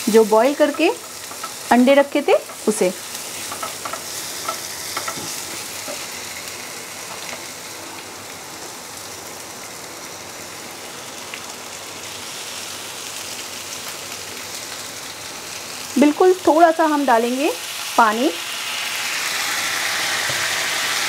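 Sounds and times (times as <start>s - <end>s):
masala sizzling in oil: 0.0s - 21.0s.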